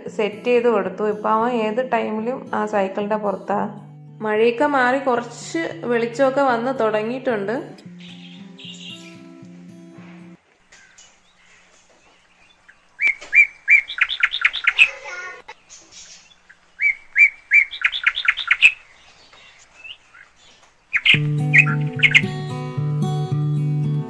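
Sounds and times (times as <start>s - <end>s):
bird singing sharp high notes: 3.7s - 11.0s, 21.0s - 22.8s
faint bird chirps: 7.8s - 9.4s, 10.7s - 22.4s.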